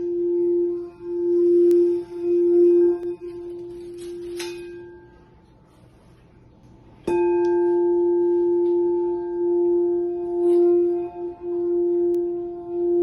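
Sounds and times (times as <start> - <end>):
singing bowl struck: 0.0 - 5.4, 7.0 - 13.0
singing bowl ringing: 0.0 - 5.6, 7.0 - 13.0.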